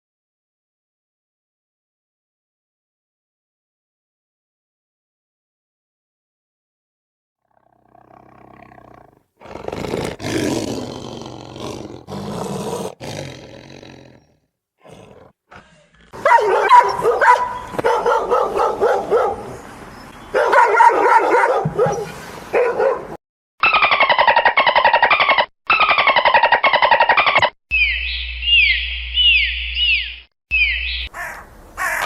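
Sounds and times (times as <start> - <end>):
animal calls: 31.0 - 32.0.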